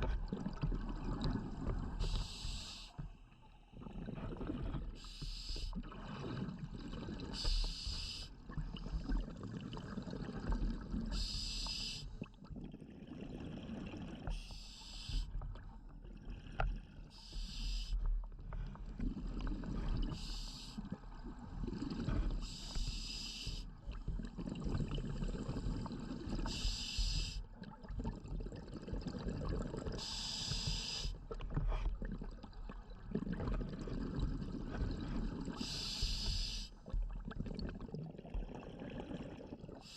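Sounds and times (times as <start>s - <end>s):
bubbling rumble: 0.0s - 2.4s, 3.6s - 5.1s, 5.8s - 11.4s, 18.2s - 22.8s, 23.5s - 39.9s
regulator breathing hiss: 2.0s - 3.0s, 5.0s - 5.8s, 7.3s - 8.3s, 11.1s - 12.2s, 14.3s - 15.4s, 17.1s - 18.0s, 20.1s - 20.8s, 22.4s - 23.7s, 26.4s - 27.4s, 30.0s - 31.2s, 35.5s - 36.8s.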